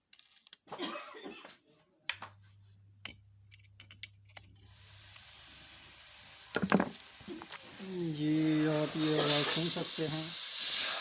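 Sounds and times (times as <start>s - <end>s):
steady hiss: 4.7s - 11.0s
compressor humming: 4.8s - 11.0s.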